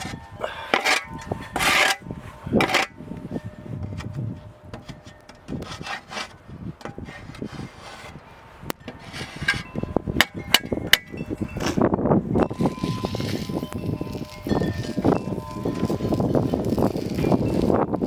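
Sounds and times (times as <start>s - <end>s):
ice being scraped: 0.0s - 2.0s, 2.6s - 3.0s, 5.5s - 6.4s, 7.0s - 8.2s, 9.0s - 9.6s, 12.6s - 17.9s.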